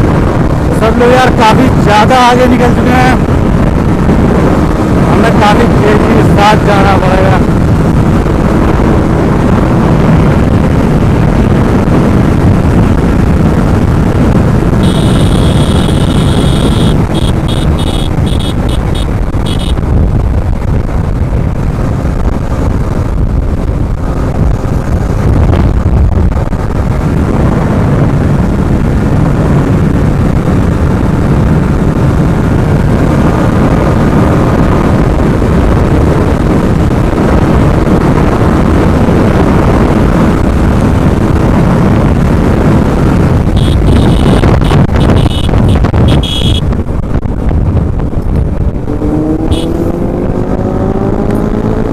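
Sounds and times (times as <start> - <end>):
motorcycle engine at speed: 0.0 - 51.9
wind buffeting microphone: 0.0 - 51.9
high beeping tone: 14.8 - 19.8, 43.6 - 46.6.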